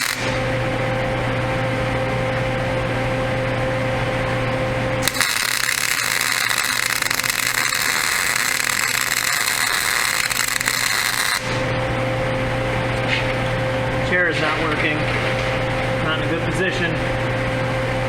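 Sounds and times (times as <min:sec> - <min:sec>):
welding arc sizzling: 0:00.0 - 0:01.5, 0:04.8 - 0:16.8
electrical hum: 0:00.0 - 0:18.0.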